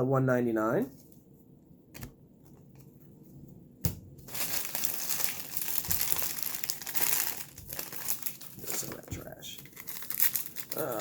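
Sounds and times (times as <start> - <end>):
wrapper crinkling: 4.2 - 11.0.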